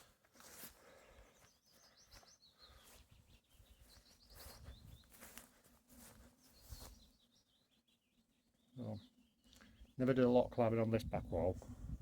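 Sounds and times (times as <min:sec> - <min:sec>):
small birds chirping: 0:00.0 - 0:12.0
soft scuffs: 0:03.8 - 0:07.0.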